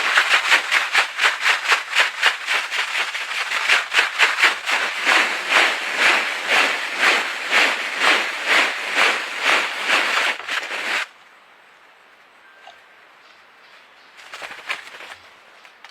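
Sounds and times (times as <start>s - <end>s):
bird wings swishing: 0.0s - 11.1s, 14.2s - 15.4s.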